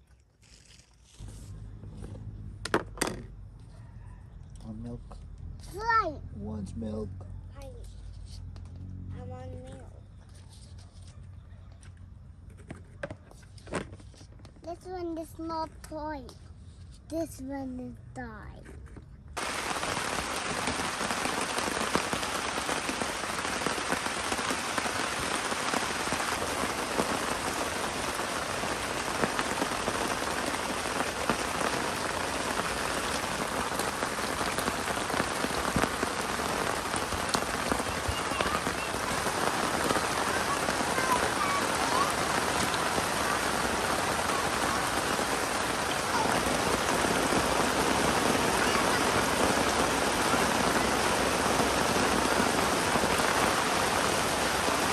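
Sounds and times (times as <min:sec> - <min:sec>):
steady rain falling: 0:19.4 - 0:54.9.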